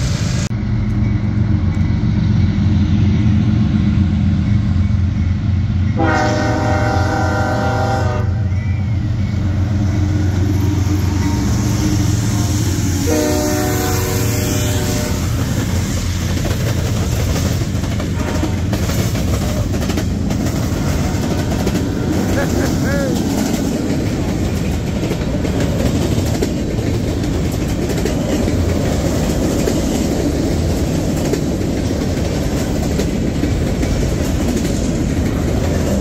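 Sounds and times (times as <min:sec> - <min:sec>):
diesel locomotive engine droning: 0:00.0 - 0:36.0
train horn blasts: 0:05.9 - 0:10.3, 0:10.9 - 0:15.6, 0:18.1 - 0:18.8.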